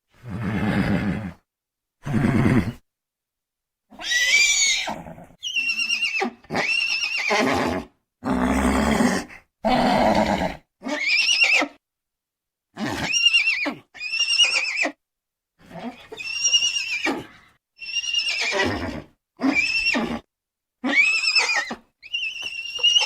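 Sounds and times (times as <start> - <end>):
horse neighing: 2.0 - 2.8, 3.9 - 11.8, 15.8 - 23.0.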